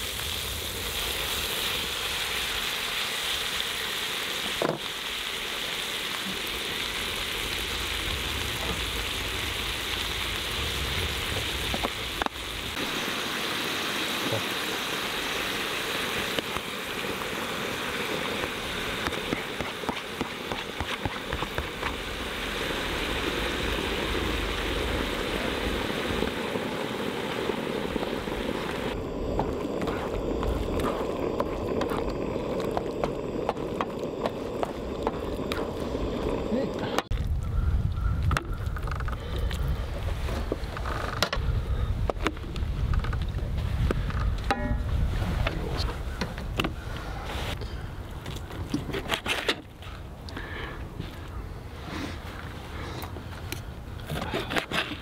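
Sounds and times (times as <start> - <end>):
food sizzling in a pan: 0.0 - 36.9.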